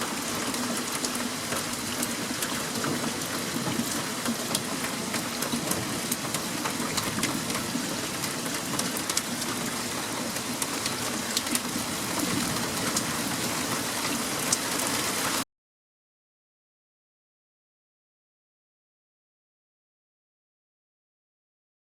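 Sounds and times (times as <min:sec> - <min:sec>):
heavy rain falling: 0:00.0 - 0:15.4
raindrops ticking on hard surfaces: 0:00.0 - 0:15.4.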